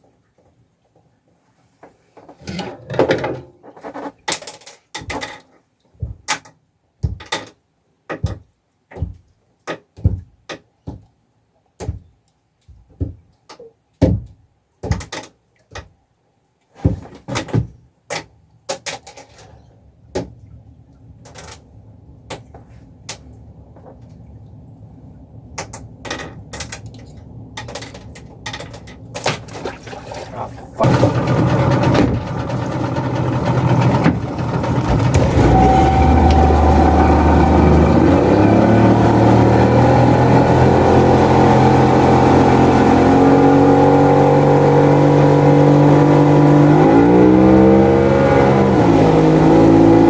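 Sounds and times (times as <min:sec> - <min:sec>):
sharp knocks and thuds: 0:08.1 - 0:11.1, 0:11.8 - 0:12.1, 0:14.0 - 0:15.9, 0:16.8 - 0:17.8, 0:29.2 - 0:36.7.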